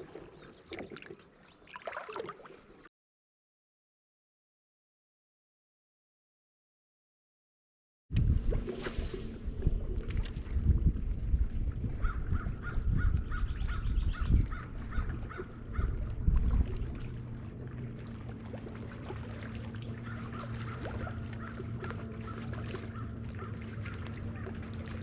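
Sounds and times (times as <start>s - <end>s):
steady low hum: 8.2s - 25.0s
wind gusts rumbling: 9.4s - 17.6s.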